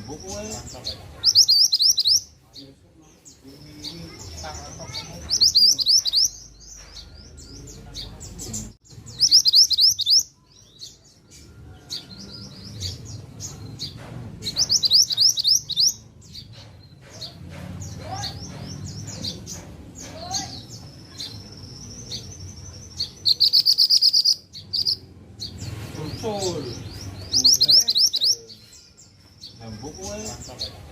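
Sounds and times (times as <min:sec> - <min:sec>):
bird twittering: 0:00.0 - 0:30.8.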